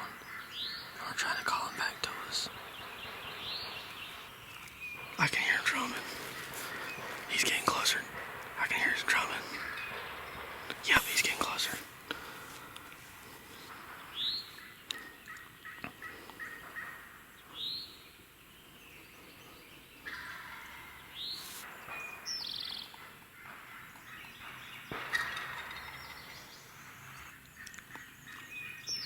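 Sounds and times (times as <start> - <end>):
turkey gobbling: 2.8 - 11.7.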